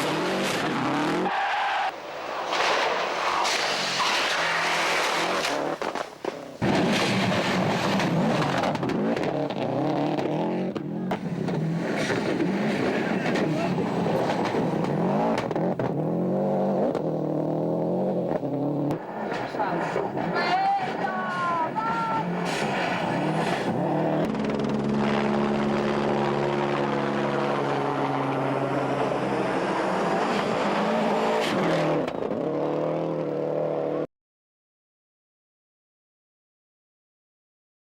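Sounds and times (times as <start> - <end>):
rally car engine revving: 0.0 - 1.3, 6.6 - 34.1.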